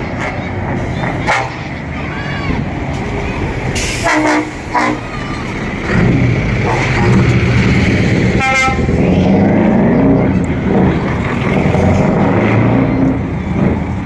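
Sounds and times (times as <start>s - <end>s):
truck horn toot: 0.0s - 2.6s, 3.4s - 7.6s, 8.4s - 10.2s
heavy truck engines running: 0.0s - 14.0s.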